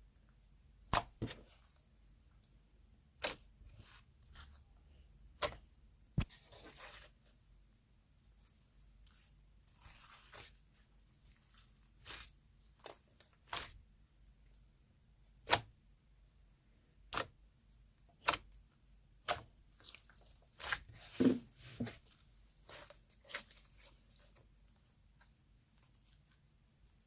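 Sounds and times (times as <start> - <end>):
clay slime clicking: 0.8 - 1.5, 2.4 - 3.6, 5.3 - 5.7, 15.3 - 15.8, 17.0 - 19.8
low slime sound: 8.3 - 14.0, 18.2 - 27.0.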